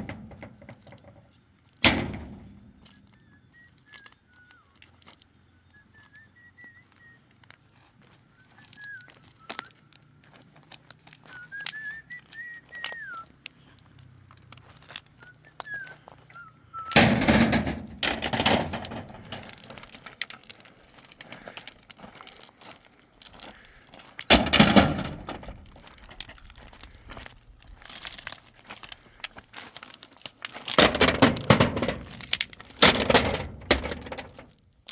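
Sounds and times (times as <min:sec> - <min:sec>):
person whistling a tune: 0:02.9 - 0:05.0, 0:05.6 - 0:07.4, 0:08.3 - 0:09.9, 0:11.2 - 0:13.5, 0:15.2 - 0:17.0.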